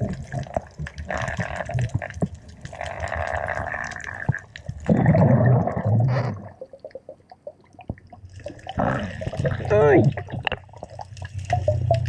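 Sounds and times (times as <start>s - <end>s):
small clicks crackling: 0.0s - 4.9s
water rushing and gurgling: 0.0s - 12.0s.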